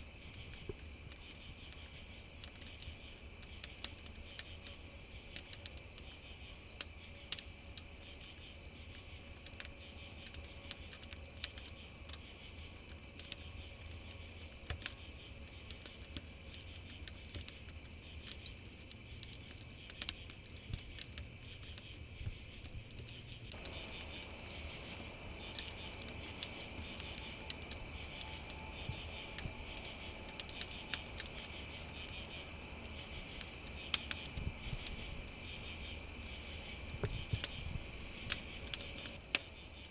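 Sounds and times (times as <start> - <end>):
campfire crackling and popping: 0.0 - 39.9
crickets chirping: 0.0 - 39.9
low background hiss: 21.2 - 39.9.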